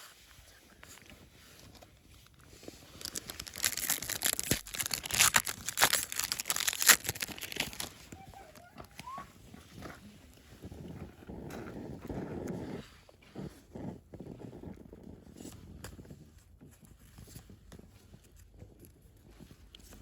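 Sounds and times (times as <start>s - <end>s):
foil pack tearing and crinkling: 2.8s - 8.1s.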